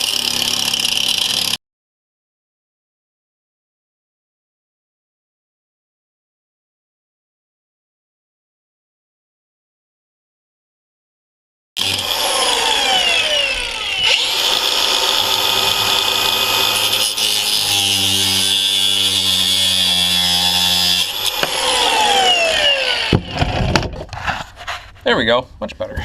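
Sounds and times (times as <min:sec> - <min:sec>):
power tool cutting: 0:00.0 - 0:01.6, 0:11.8 - 0:23.9.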